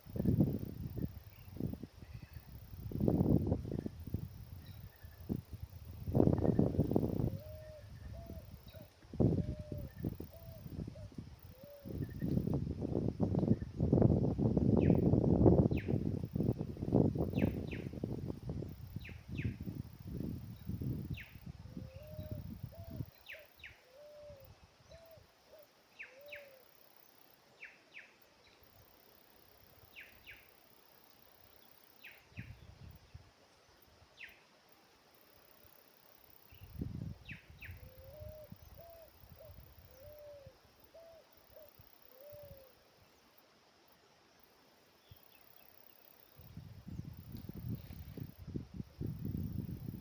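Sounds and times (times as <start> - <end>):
bird hooting: 7.2 - 12.3, 21.8 - 26.7, 37.7 - 42.8.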